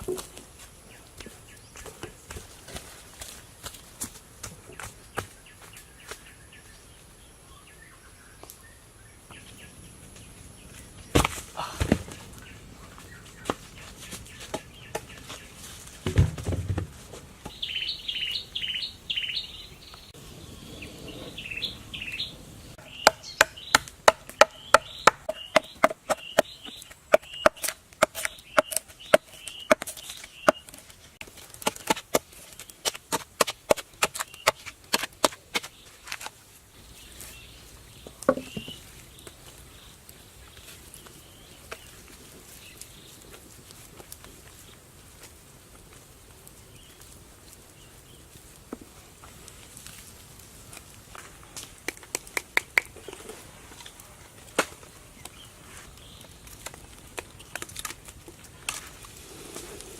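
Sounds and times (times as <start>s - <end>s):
bird chirps: 17.5s - 30.8s, 36.8s - 42.0s.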